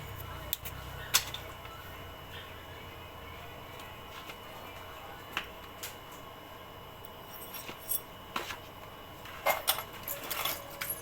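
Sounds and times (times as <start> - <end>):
metal tools clicking and clinking: 9.4 - 11.0.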